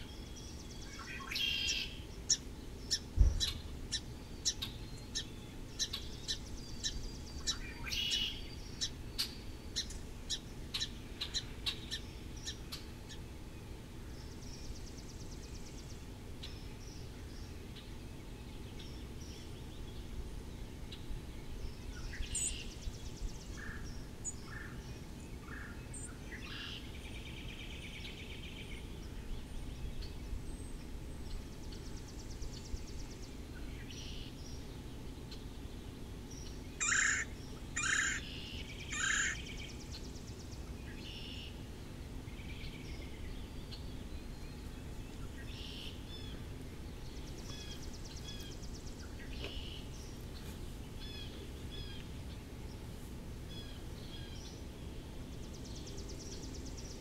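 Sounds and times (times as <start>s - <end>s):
loud bird calls: 0.0s - 13.2s, 36.4s - 57.0s
low background noise: 0.0s - 57.0s
songbirds chirping and trilling: 0.0s - 57.0s.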